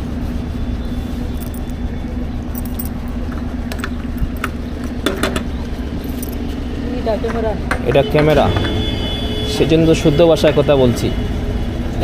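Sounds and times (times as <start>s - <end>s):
low mechanical hum: 0.0s - 10.0s
metallic clinks and jingles: 1.3s - 1.8s, 2.4s - 3.5s, 5.9s - 6.6s.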